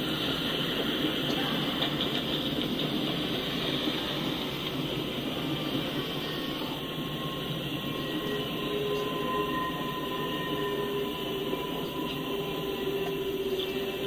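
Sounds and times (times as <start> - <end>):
steel wheels rolling on rails: 0.0 - 14.0
faint thin wheel squeal: 5.9 - 14.0.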